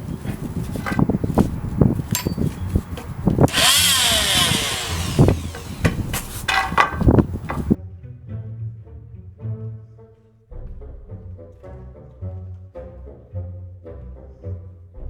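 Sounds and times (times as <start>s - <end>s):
multi-tool saw cutting wood: 0.0s - 7.8s
wood and tool clattering: 0.0s - 7.8s.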